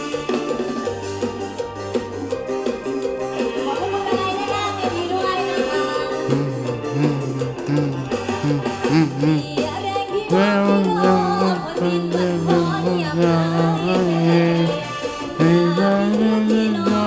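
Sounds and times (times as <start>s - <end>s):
band backing music: 0.0s - 17.0s
girl singing: 3.7s - 6.3s, 9.2s - 17.0s.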